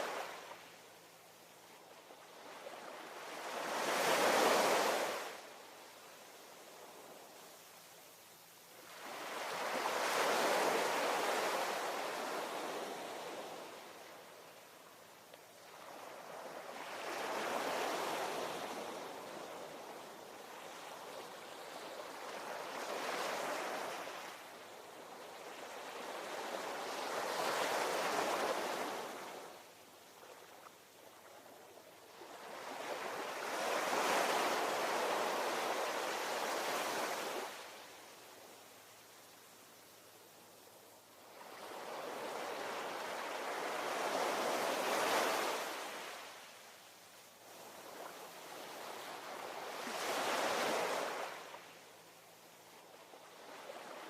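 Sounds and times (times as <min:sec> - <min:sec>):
ocean waves breaking on shore: 0:02.1 - 0:05.5, 0:08.8 - 0:14.4, 0:15.6 - 0:29.6, 0:32.1 - 0:37.9, 0:41.3 - 0:46.5, 0:47.6 - 0:51.7.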